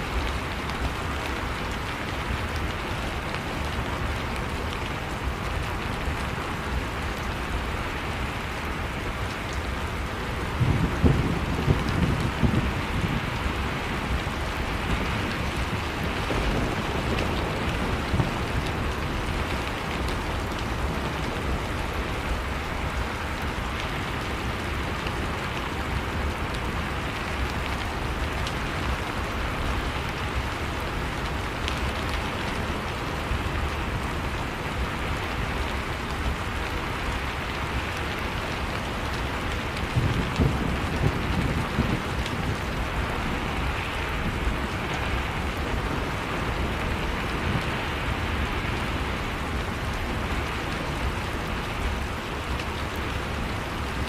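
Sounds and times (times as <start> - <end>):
heavy rain: 0.0 - 54.0
thunder rumbling: 10.4 - 21.7, 39.7 - 47.6.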